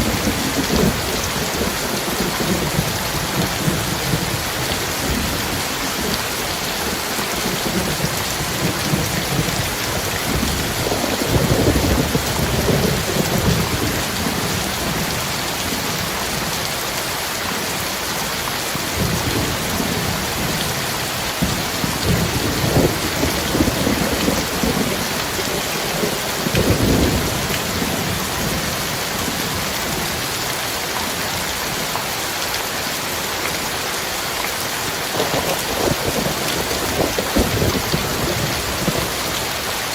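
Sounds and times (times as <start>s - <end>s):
heavy rain: 0.0s - 39.9s
rolling thunder: 7.5s - 15.2s, 21.4s - 30.0s, 35.1s - 39.2s.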